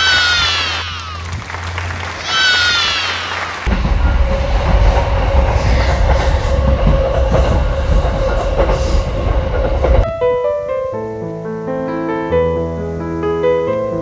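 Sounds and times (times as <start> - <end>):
train wheels rumbling on rail: 0.0 - 10.1
piano music: 9.4 - 14.0.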